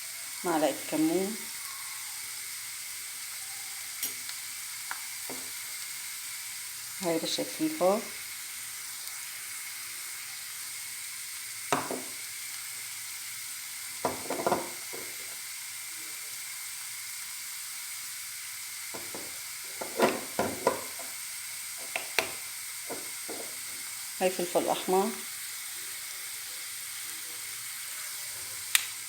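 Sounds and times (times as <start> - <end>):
onion sizzling in frying pan: 0.0 - 29.0
spoon knocking against pan: 11.7 - 12.2, 14.0 - 15.3, 19.0 - 21.2, 21.8 - 23.6.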